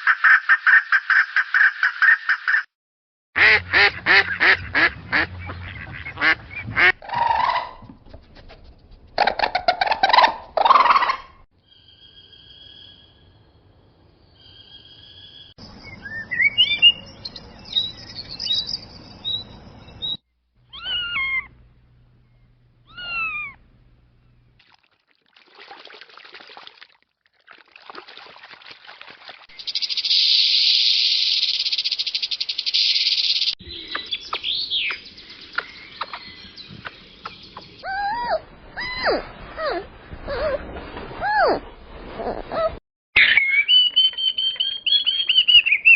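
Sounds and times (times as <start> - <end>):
cat meowing: 20.7 - 21.5, 22.9 - 23.6.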